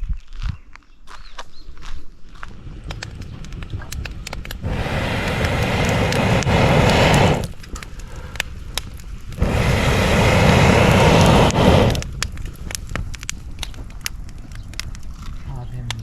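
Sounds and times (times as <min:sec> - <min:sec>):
wood fire crackling and popping: 0:02.3 - 0:16.0
loud rush of air with rumble: 0:04.4 - 0:08.4, 0:09.3 - 0:12.3.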